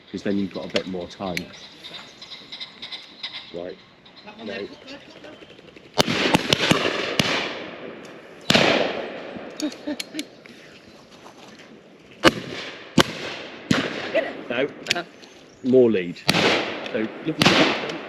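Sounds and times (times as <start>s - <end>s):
loud shotgun report echoing: 6.0s - 9.6s, 12.2s - 15.0s, 15.7s - 18.0s
shotgun shots: 6.0s - 9.6s, 12.2s - 14.4s, 16.3s - 18.0s.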